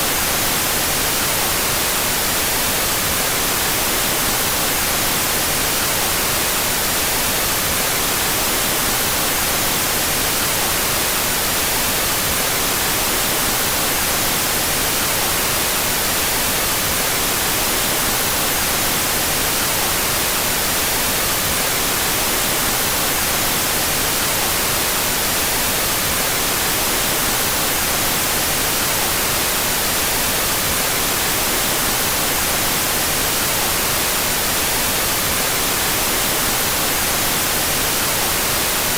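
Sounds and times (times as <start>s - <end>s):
steady white noise hiss: 0.0s - 38.9s.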